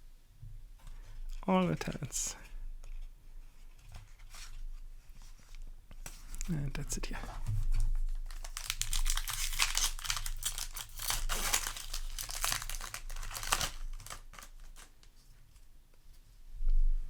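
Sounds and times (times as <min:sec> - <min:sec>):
foil wrapper crinkling and tearing: 0:08.0 - 0:15.2.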